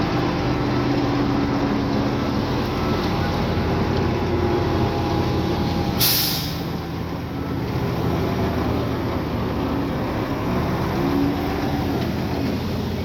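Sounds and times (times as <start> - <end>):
heavy diesel machinery running: 0.0 - 13.0
burst of hiss: 6.0 - 6.7.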